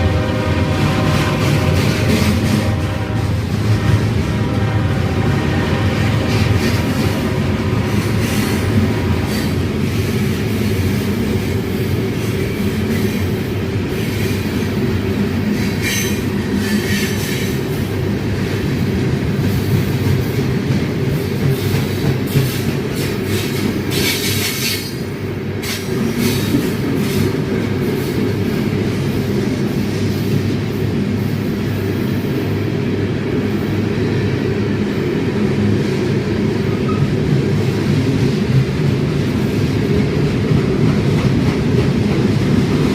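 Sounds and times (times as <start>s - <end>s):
freight train rumbling on rails: 0.0s - 42.9s
train hissing or screeching: 15.5s - 17.7s, 23.3s - 27.3s.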